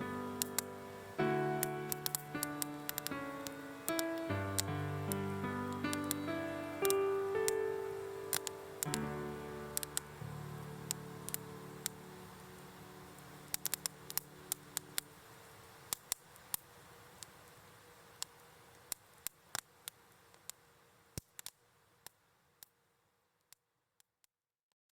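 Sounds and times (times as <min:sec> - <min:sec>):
background music: 0:00.0 - 0:15.5
campfire crackling: 0:00.0 - 0:21.6.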